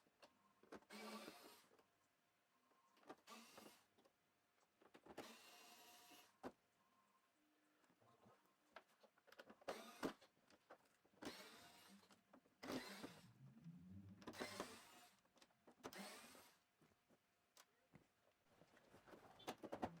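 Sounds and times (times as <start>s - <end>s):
electric screwdriver whirring: 9.7s - 10.2s, 11.2s - 12.0s, 12.6s - 13.2s, 14.3s - 15.1s, 15.9s - 16.6s.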